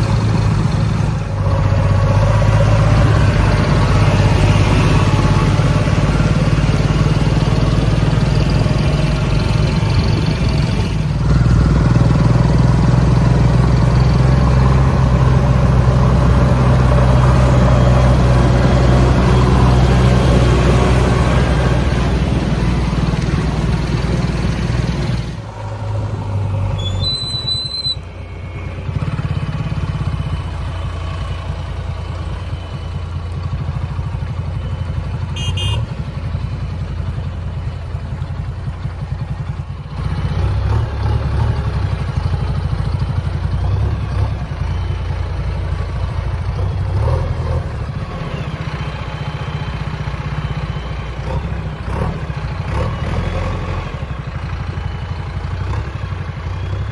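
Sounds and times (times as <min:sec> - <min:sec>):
diesel engine of digger driving: 0:00.0 - 0:56.9.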